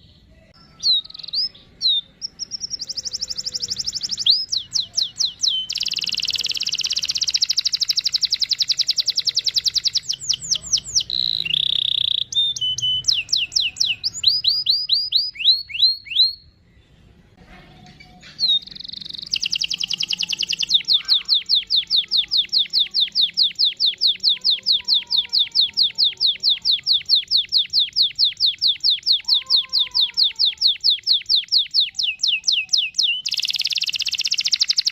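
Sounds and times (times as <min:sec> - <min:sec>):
canary singing trills: 0:00.0 - 0:16.6, 0:18.0 - 0:34.9.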